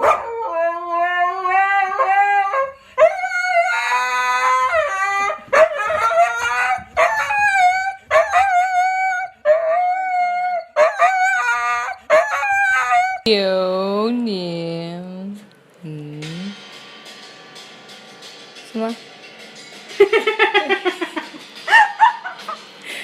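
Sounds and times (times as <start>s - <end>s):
dog howling: 0.0s - 13.3s, 21.7s - 22.4s.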